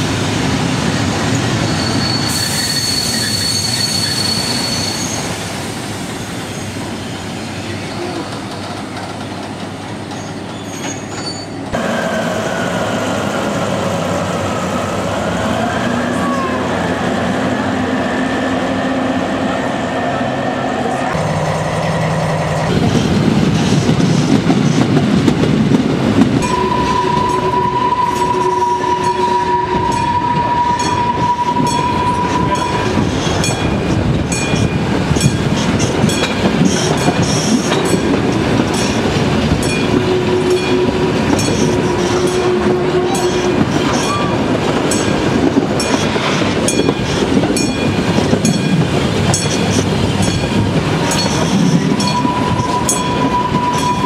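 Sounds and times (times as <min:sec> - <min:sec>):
train rumble and wheel clatter: 0:00.0 - 0:54.0
long whistling tone: 0:01.7 - 0:05.2, 0:26.4 - 0:32.8, 0:52.0 - 0:54.0.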